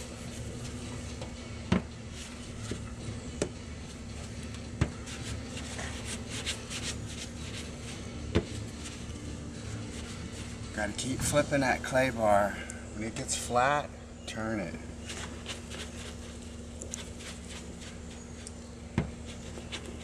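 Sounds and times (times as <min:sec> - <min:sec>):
clay bar rubbing car paint: 0:03.8 - 0:11.1, 0:15.0 - 0:20.0.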